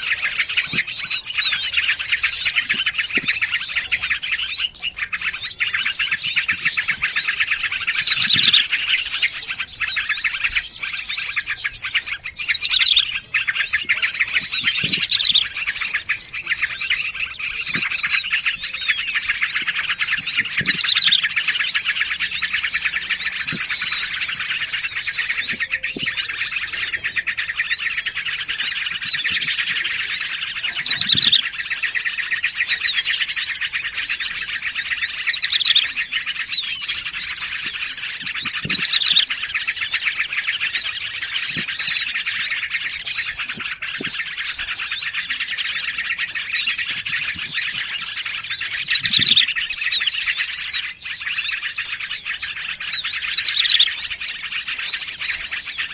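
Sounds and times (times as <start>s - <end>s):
fast high bird trill: 0.0s - 55.9s
small songbirds chirping: 0.0s - 55.9s.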